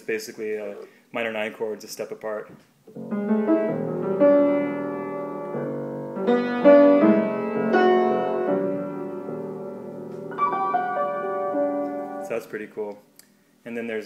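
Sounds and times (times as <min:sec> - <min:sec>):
keyboard playing sustained chords: 0:03.1 - 0:12.4.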